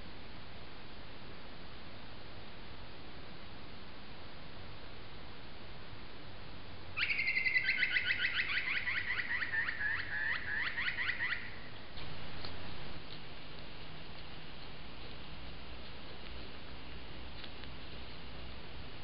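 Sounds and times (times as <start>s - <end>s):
microphone hiss: 0.0s - 19.0s
bird calling: 7.0s - 13.2s.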